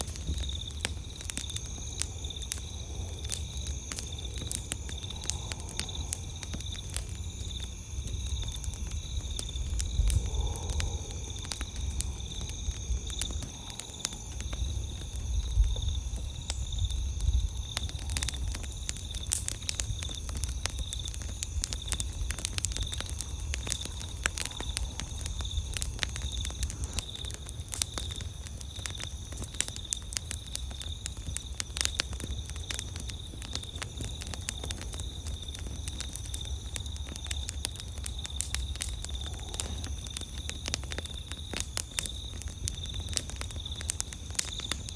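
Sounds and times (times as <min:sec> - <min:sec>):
campfire crackling and popping: 0:00.0 - 0:44.9
night insects chirring: 0:00.0 - 0:44.9.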